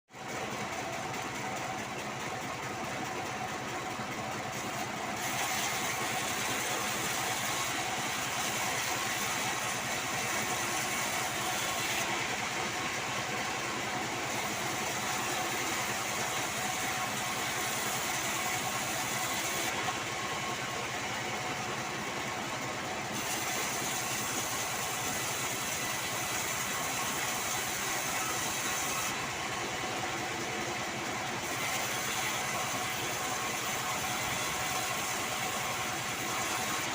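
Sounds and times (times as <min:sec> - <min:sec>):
band saw whirring: 0:00.2 - 0:36.9
high hiss of sawing: 0:04.6 - 0:19.9, 0:23.1 - 0:29.2, 0:31.4 - 0:36.9.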